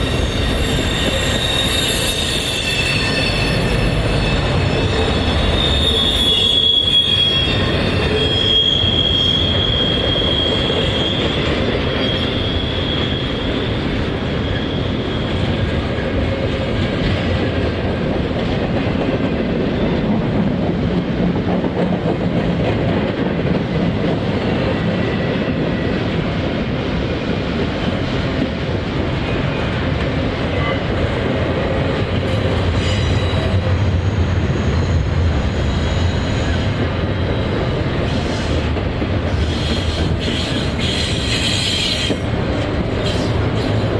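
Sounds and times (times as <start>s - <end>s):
train wheels squealing: 0.0s - 17.7s, 32.2s - 43.9s
freight train cars rumbling: 0.0s - 43.9s.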